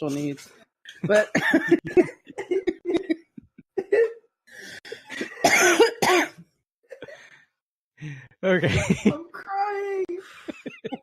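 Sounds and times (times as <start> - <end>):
person coughing: 1.0 - 4.2, 4.9 - 7.2.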